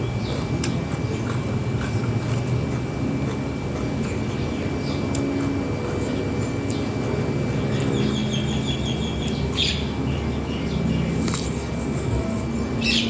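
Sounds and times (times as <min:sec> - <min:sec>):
steady low hum: 0:00.0 - 0:13.0
small birds chirping: 0:04.0 - 0:13.0.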